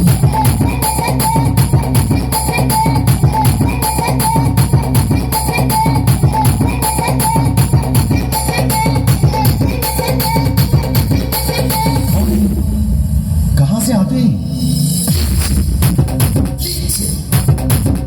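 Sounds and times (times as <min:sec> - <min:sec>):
dance music with heavy bass: 0:00.0 - 0:12.8, 0:14.6 - 0:18.0.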